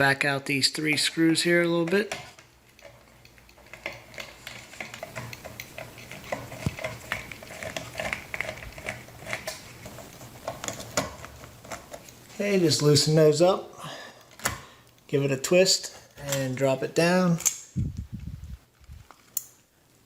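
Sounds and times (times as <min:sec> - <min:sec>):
screwdriver metallic clicks and scrapes: 0:02.2 - 0:11.1.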